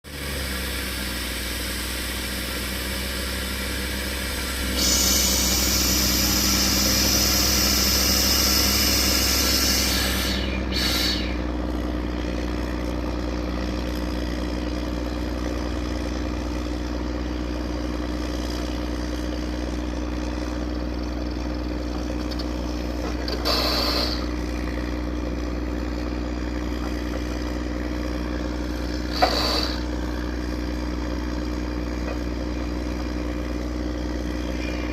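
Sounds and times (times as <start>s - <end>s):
drilling machine engine humming: 0.1s - 34.9s
short bursts of noise: 4.7s - 11.5s, 23.3s - 24.3s, 29.1s - 29.9s.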